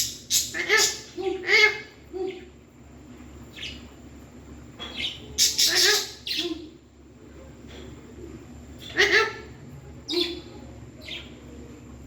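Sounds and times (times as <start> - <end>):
parrot squawking and chattering: 0.0 - 2.4, 5.0 - 6.8, 8.8 - 10.5.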